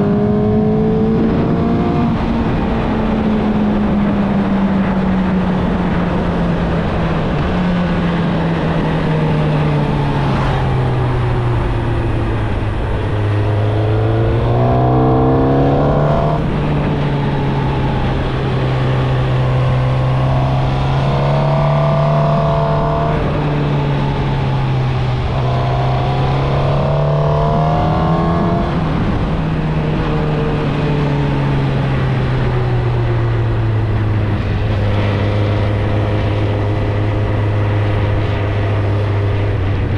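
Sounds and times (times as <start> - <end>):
motorcycle engine revving: 9.5 - 39.7
wind rushing: 11.5 - 29.5.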